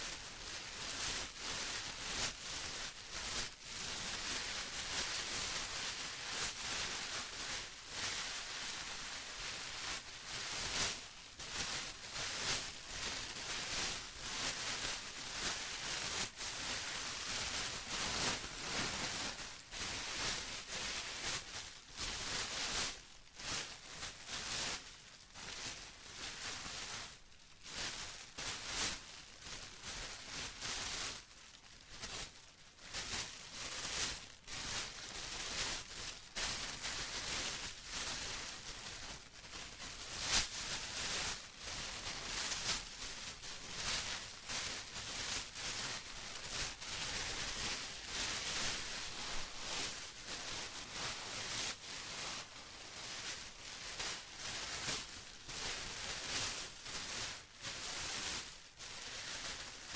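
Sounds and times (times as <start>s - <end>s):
plastic crinkling: 32.9s - 58.4s, 59.0s - 59.8s.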